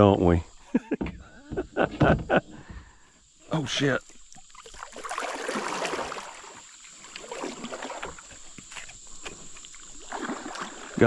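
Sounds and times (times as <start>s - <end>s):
small knocks on a kayak: 0.9s - 2.8s
water splashing against a kayak: 1.0s - 11.0s.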